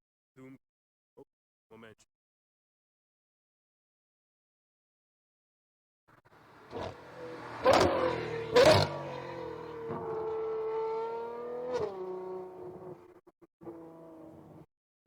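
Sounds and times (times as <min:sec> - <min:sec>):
car engine accelerating: 0:06.3 - 0:14.6.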